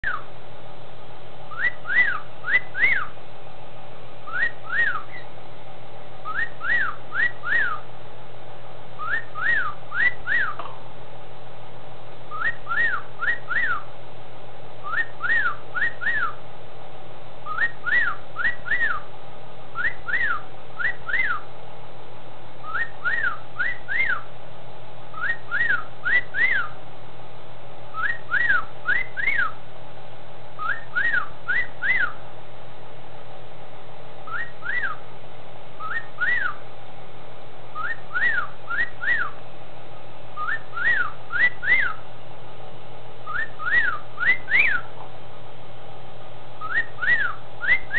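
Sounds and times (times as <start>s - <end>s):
cockatiel wolf-whistling: 0.0s - 0.3s, 1.5s - 3.1s, 4.3s - 5.3s, 6.2s - 7.8s, 9.0s - 10.6s, 12.3s - 13.8s, 14.8s - 16.4s, 17.4s - 19.0s, 19.8s - 21.4s, 22.6s - 24.2s, 25.1s - 26.8s, 27.9s - 29.6s, 30.6s - 32.2s, 34.3s - 35.0s, 35.8s - 36.6s, 37.8s - 39.4s, 40.4s - 42.0s, 43.2s - 44.9s, 46.6s - 47.9s
steady low hum: 0.0s - 47.9s.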